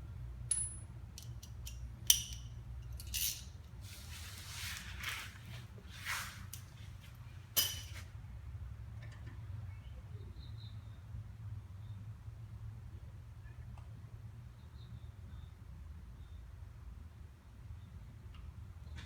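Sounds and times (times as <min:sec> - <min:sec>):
wrench clicking on metal: 0:00.5 - 0:03.6
soft metal scraping: 0:03.0 - 0:08.1.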